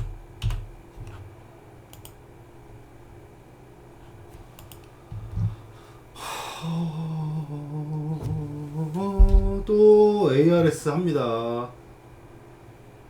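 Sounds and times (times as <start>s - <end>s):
man humming: 6.2s - 11.7s
thump: 9.2s - 9.6s.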